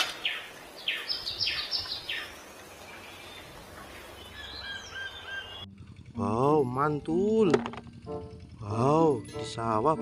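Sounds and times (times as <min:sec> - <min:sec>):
outdoor background hiss: 0:00.0 - 0:10.0.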